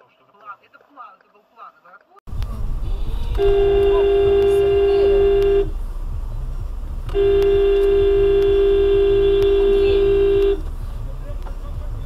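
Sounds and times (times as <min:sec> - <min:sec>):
road and engine rumble: 0:02.3 - 0:12.0
vehicle horn blaring: 0:02.8 - 0:05.8, 0:07.1 - 0:10.8.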